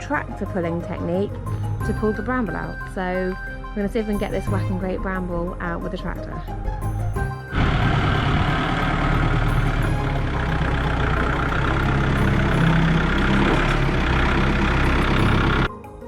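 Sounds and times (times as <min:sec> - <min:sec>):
tractor engine running: 0:07.5 - 0:15.7.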